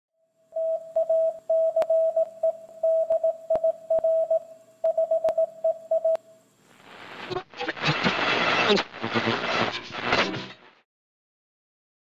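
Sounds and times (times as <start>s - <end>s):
morse code beeps: 0.6s - 6.2s
crackle clicks: 0.9s - 4.1s, 4.8s - 10.8s.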